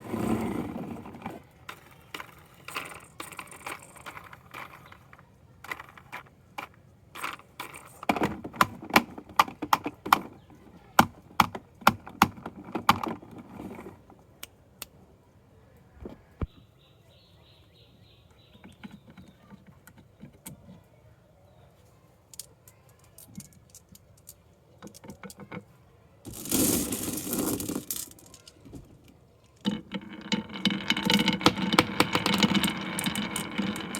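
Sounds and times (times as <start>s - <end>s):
marbles clacking down wooden run: 1.7s - 10.3s, 22.4s - 25.6s, 26.3s - 28.6s, 29.6s - 33.9s.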